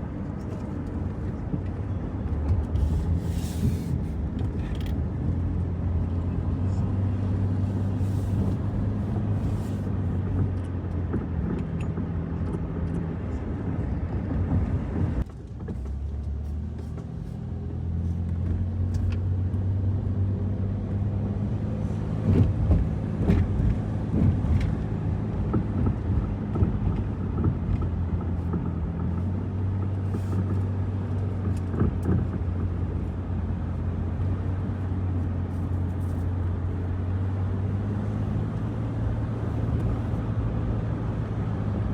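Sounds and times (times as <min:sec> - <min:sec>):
car engine and road hum: 0:00.0 - 0:41.9.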